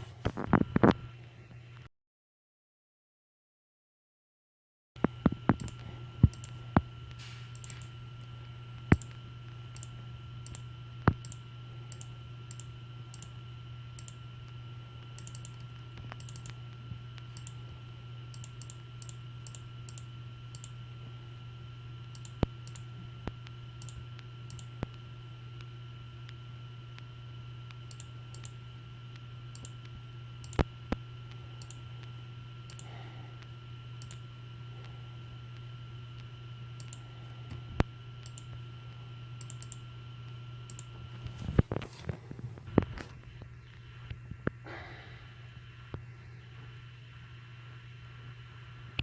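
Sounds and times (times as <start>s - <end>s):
electrical hum: 0.0s - 1.9s, 5.0s - 49.0s
faint regular ticking: 5.0s - 6.8s, 7.5s - 17.6s, 18.3s - 20.8s, 22.1s - 25.0s, 27.7s - 34.3s, 35.5s - 37.6s, 38.2s - 38.6s, 39.4s - 39.8s, 40.7s - 40.9s
mouse and keyboard clicks: 15.2s - 16.6s.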